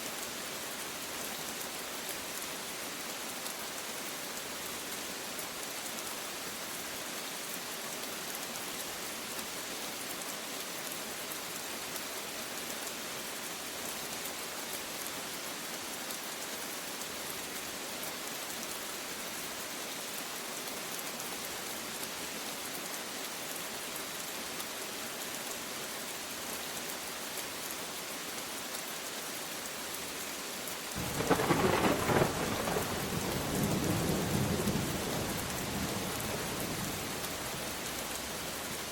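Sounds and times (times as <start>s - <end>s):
steady rain hiss: 0.0s - 38.9s
thunder clap rolling: 31.0s - 35.4s.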